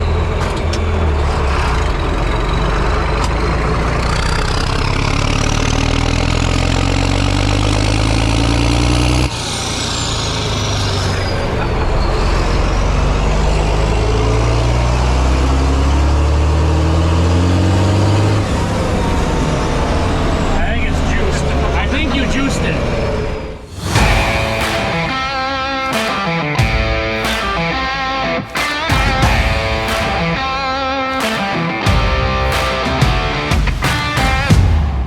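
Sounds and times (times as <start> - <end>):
large engine under load: 0.0 - 33.4.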